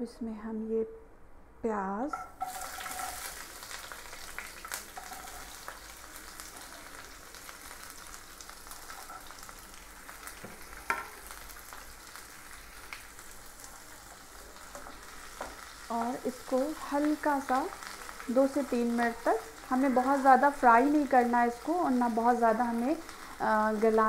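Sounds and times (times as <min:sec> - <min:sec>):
onions sizzling in hot oil: 0:02.3 - 0:24.0.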